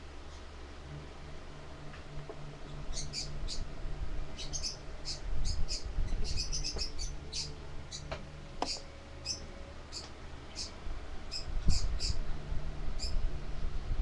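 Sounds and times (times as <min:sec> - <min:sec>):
low rumbling: 0:00.0 - 0:14.0
steady low hum: 0:00.0 - 0:14.0
birds chirping: 0:02.6 - 0:03.7, 0:04.3 - 0:12.2, 0:13.0 - 0:13.2.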